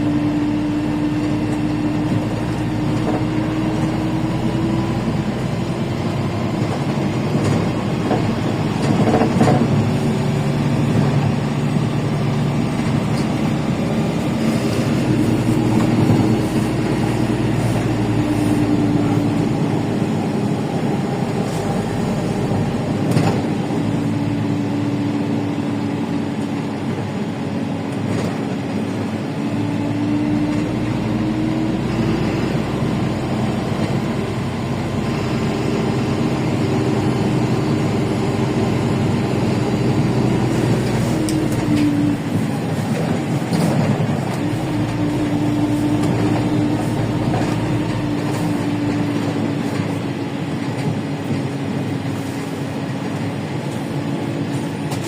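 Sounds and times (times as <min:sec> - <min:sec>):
bus engine and road rumble: 0:00.0 - 0:55.0
drivetrain whine: 0:00.0 - 0:55.0
rattles and knocks: 0:06.7 - 0:11.2.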